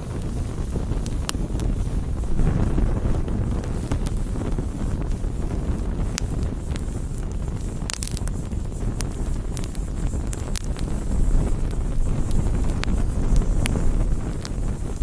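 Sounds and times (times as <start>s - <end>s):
campfire rumbling: 0.0s - 15.0s
fire crackles and pops: 0.0s - 15.0s.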